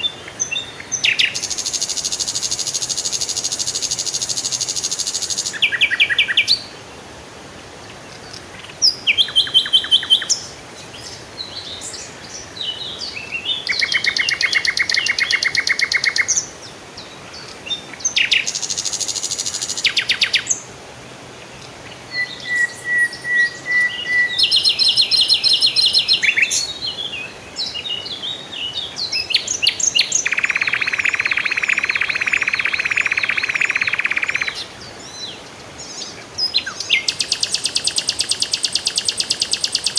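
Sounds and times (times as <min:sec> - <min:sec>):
songbirds chirping trills: 0:07.6 - 0:39.9
bird whistled notes: 0:22.1 - 0:26.6, 0:30.2 - 0:34.6.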